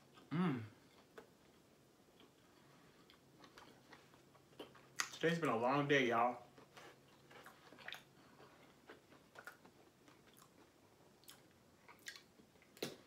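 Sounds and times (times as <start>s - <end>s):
wet mouth clicks chewing: 11.2s - 12.9s.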